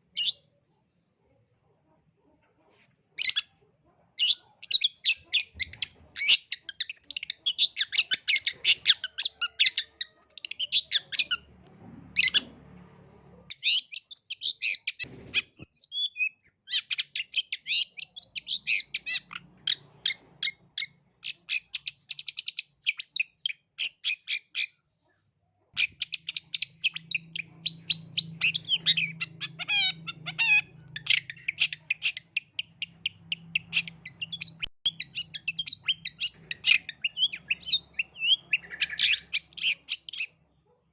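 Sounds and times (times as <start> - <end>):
bird singing high chattering notes: 25.8 - 40.4.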